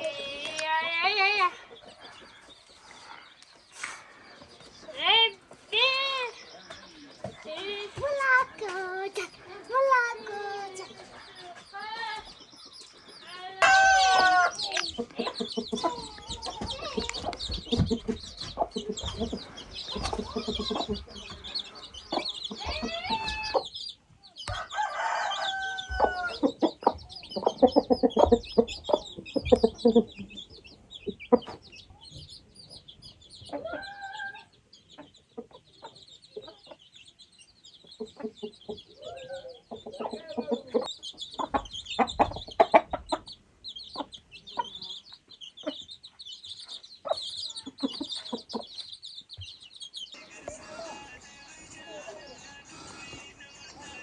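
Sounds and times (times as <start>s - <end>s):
chickens clucking: 0.0s - 54.0s
rooster crowing: 13.6s - 14.7s, 24.5s - 26.4s.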